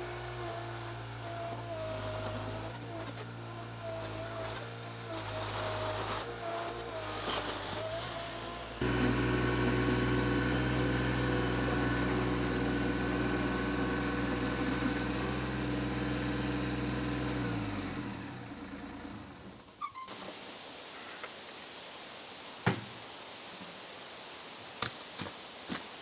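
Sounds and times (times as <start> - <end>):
vehicle engine running: 0.0 - 19.7.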